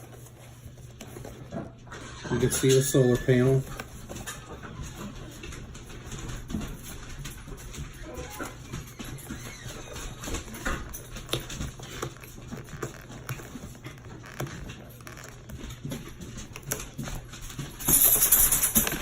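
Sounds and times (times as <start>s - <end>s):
packaging crinkling: 8.0s - 19.0s.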